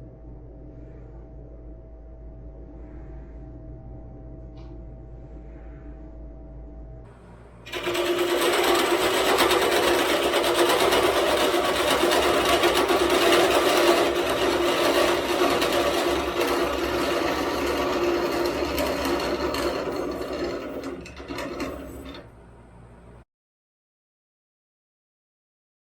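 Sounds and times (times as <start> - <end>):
machine motor humming and rattling: 7.7 - 23.2.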